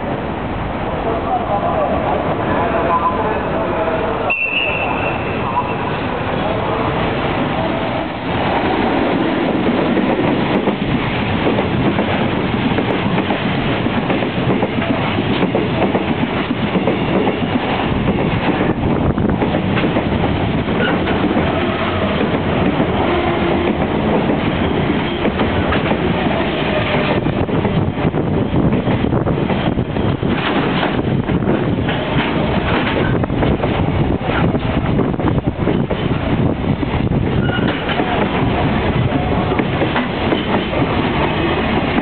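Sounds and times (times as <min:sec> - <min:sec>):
steel wheels running on rails: 0:07.5 - 0:42.0.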